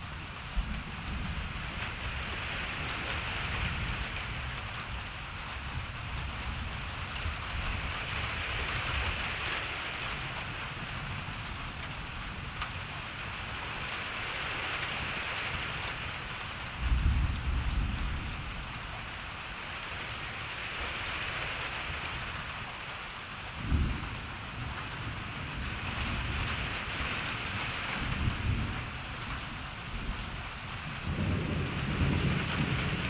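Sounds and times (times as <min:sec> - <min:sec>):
steady rain: 0:00.0 - 0:33.0
distant thunder rumble: 0:23.6 - 0:33.0.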